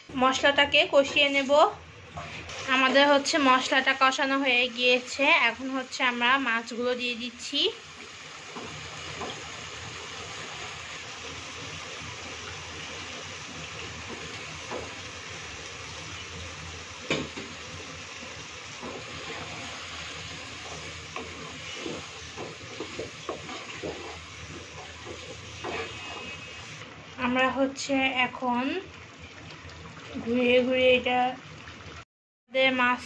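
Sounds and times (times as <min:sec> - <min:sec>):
fish sizzling in a pan: 0:02.4 - 0:26.8.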